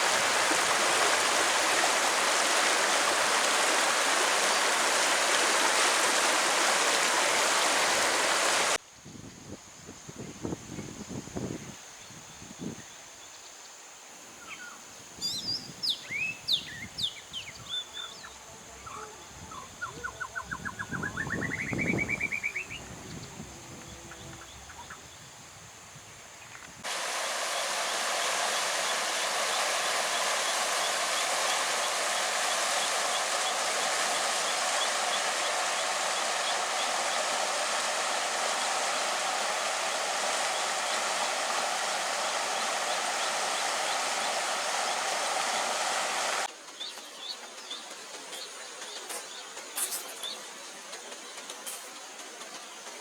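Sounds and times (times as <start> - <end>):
rushing flowing water: 0.0 - 8.8, 26.8 - 46.6
birds chirping and trilling: 14.4 - 25.2.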